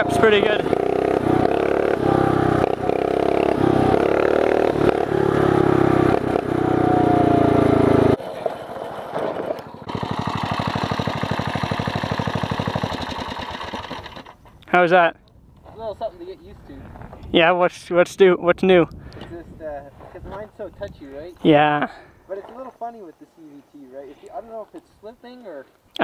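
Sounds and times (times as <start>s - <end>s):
small engine revving and idling: 0.0s - 14.4s.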